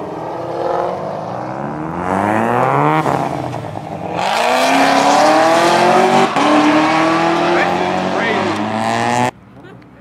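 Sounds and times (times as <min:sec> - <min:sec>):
car engine revving: 0:00.0 - 0:09.3
loud rushing noise: 0:01.7 - 0:09.3.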